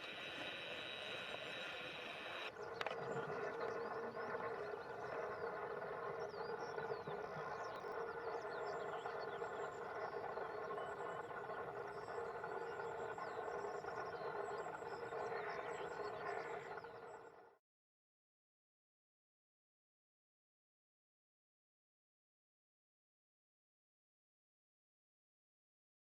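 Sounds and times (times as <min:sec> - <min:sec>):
steady droning hum: 0:00.0 - 0:17.0.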